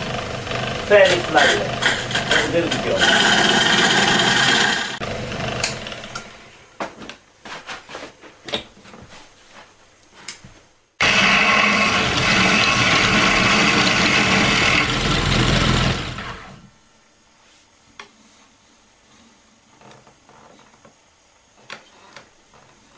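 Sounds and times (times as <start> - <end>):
chisel cutting wood: 0.0 - 5.0, 11.0 - 16.7
motor-driven lathe spinning: 0.0 - 6.4, 11.0 - 16.7.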